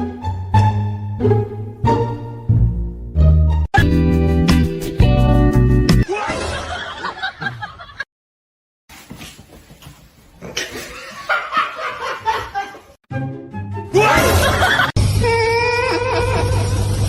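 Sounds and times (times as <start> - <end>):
people laughing and giggling: 6.1 - 8.1, 10.6 - 13.0, 14.0 - 15.0, 15.7 - 17.0.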